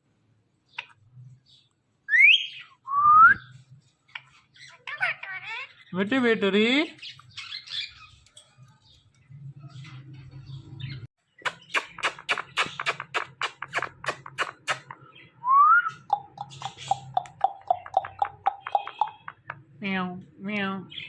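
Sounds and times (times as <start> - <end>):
parrot clicking chirps: 11.4 - 15.0, 15.9 - 19.6.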